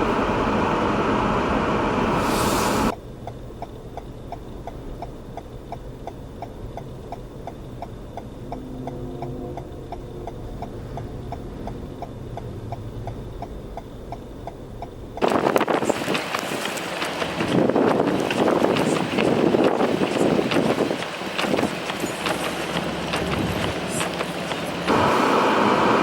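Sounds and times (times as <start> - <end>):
wind noise burst: 0.0 - 2.9, 15.2 - 16.6
low engine hum: 0.0 - 26.0.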